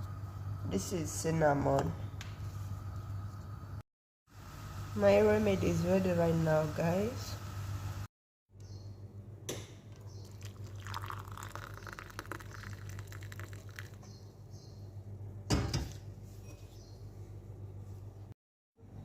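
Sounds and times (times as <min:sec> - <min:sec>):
water pouring and splashing: 0:10.3 - 0:14.0.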